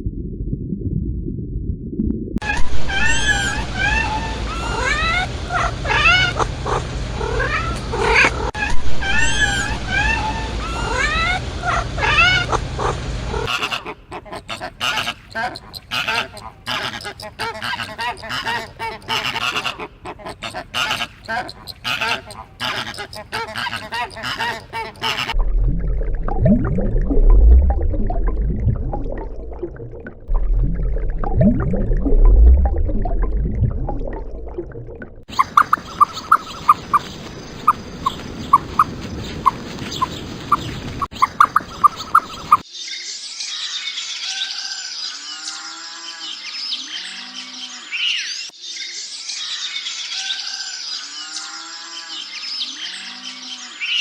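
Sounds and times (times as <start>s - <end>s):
deep steady rumble: 0.0s - 2.4s, 25.4s - 41.8s.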